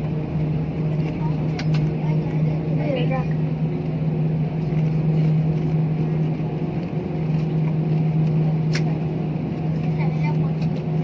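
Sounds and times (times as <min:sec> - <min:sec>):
aircraft engines droning: 0:00.0 - 0:11.0.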